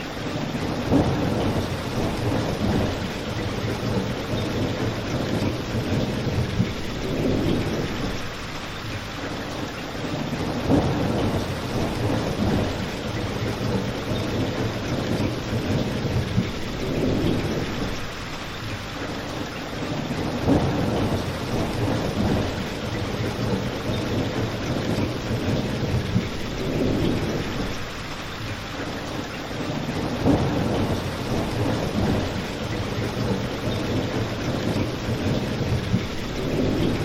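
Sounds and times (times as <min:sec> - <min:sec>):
steady rain: 0:00.0 - 0:37.0.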